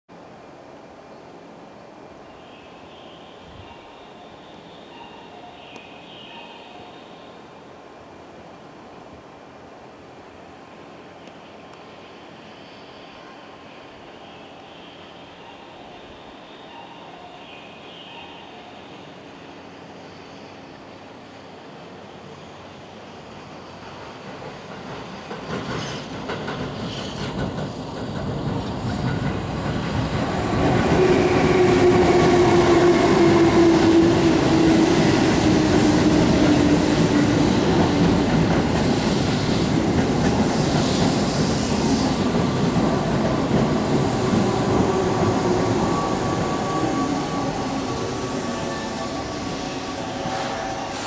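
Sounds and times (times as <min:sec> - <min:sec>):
electric train running hum: 0:03.4 - 0:51.0
train wheels clattering over rail joints: 0:23.9 - 0:31.1.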